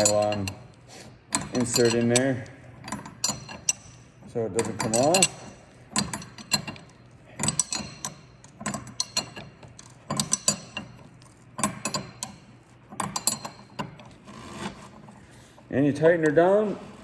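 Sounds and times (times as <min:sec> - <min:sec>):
wrench clicking on nut: 0:00.0 - 0:04.0, 0:04.6 - 0:14.1.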